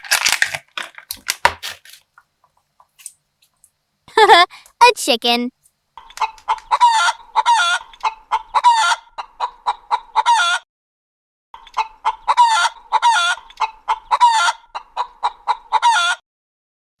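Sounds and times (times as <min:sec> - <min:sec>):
chicken clucking and cackling: 0:06.0 - 0:10.7, 0:11.6 - 0:16.2.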